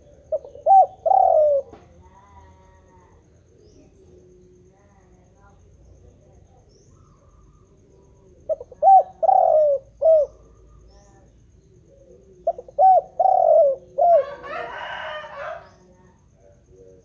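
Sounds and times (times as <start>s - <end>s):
dove cooing: 0.0s - 4.8s, 6.9s - 17.0s.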